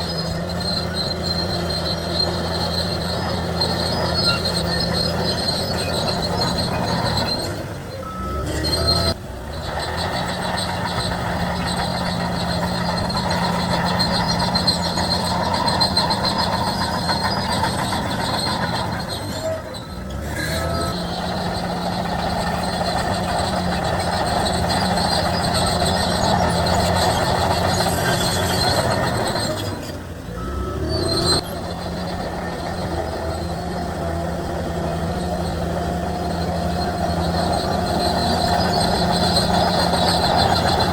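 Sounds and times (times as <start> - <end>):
bulldozer diesel engine: 0.0 - 40.9
bulldozer track noise: 0.0 - 40.9.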